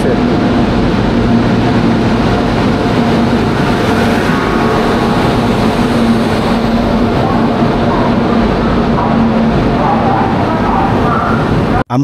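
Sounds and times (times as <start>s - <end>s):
train wheels rumbling: 0.0s - 11.8s
low hum: 0.0s - 11.9s.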